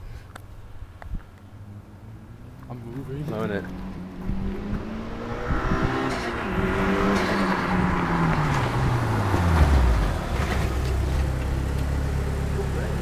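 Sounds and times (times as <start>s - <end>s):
road noise: 0.0s - 13.0s
sports car engine running hard: 3.5s - 13.0s.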